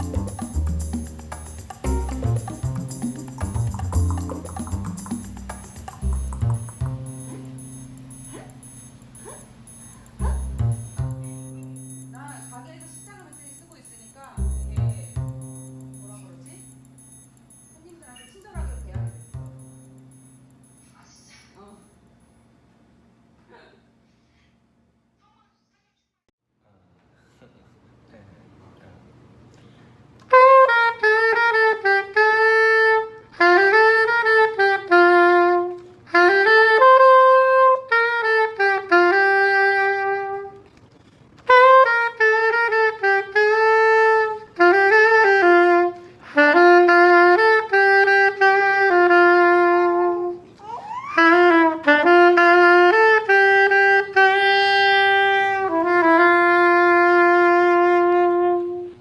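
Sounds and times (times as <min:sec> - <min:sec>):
solo saxophone hymn melody: 0:06.9 - 0:13.4, 0:30.3 - 0:40.7, 0:41.4 - 0:50.5, 0:51.2 - 0:59.0.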